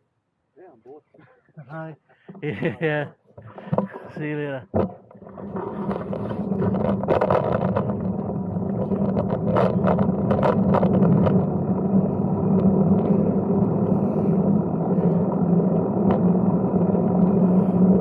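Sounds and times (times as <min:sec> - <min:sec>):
bike rattles and clicks: 0:04.7 - 0:18.0
bike tyres rumbling: 0:04.7 - 0:18.0
wind on microphone: 0:05.4 - 0:18.0.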